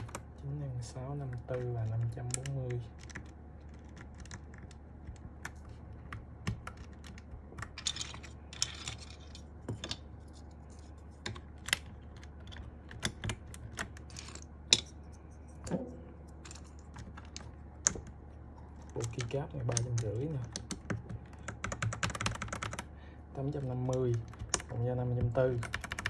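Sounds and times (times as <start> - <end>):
keycaps clicking onto switches: 1.2 - 8.0, 18.8 - 26.0.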